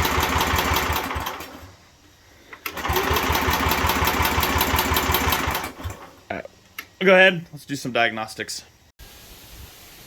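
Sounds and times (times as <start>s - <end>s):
engine cranking without starting: 0.0s - 1.8s, 2.5s - 6.2s.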